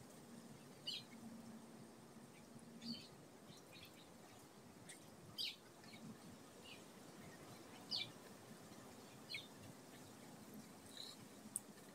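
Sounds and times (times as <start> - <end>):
background hiss: 0.0 - 11.9
bird chirping: 0.6 - 1.2, 2.3 - 8.2, 8.9 - 11.2.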